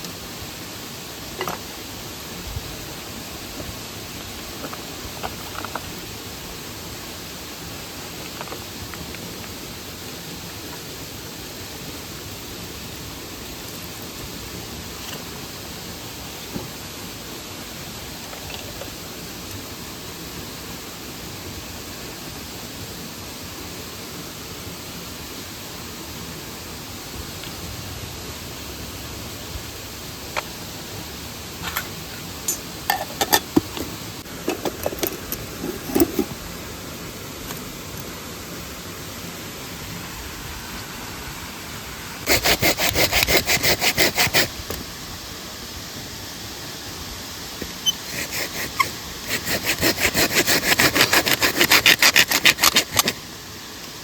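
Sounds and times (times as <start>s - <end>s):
stream water running: 0.0s - 54.0s
hand saw cutting wood: 35.6s - 36.3s, 42.2s - 44.6s, 47.8s - 53.2s.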